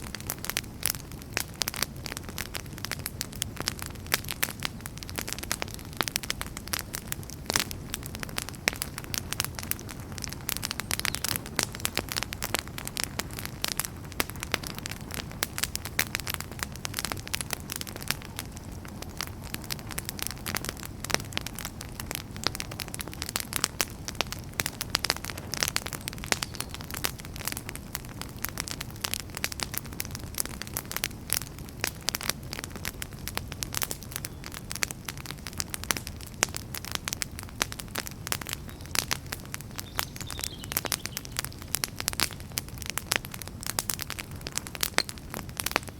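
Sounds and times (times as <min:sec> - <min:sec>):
low rumble of flame: 0:00.0 - 0:45.9
wood fire crackling and popping: 0:00.0 - 0:45.9.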